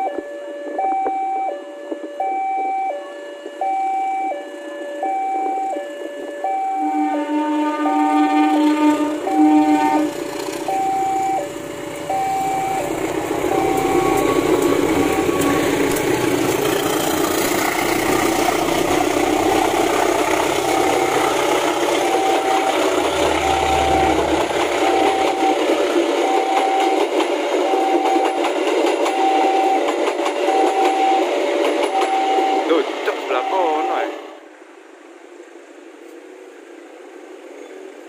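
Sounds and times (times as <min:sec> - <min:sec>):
two-tone warning alarm: 0:00.0 - 0:34.4
locomotive engine rumble: 0:04.6 - 0:38.0
train wheels clattering on rails: 0:08.6 - 0:33.7.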